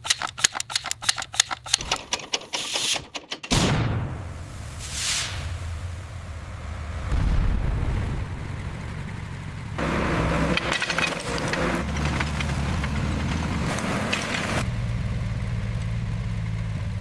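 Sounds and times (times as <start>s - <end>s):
heavy engine rumbling: 4.1s - 17.0s
crackling splintering noise: 6.9s - 14.6s.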